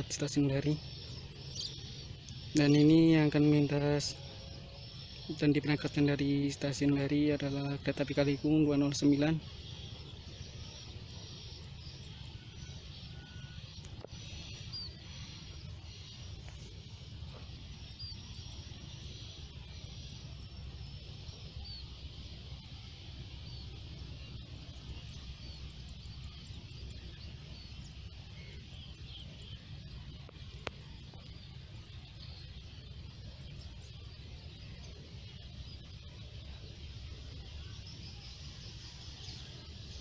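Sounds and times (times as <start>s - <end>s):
birds chirping: 0.0s - 40.0s
low outdoor rumble: 0.0s - 40.0s.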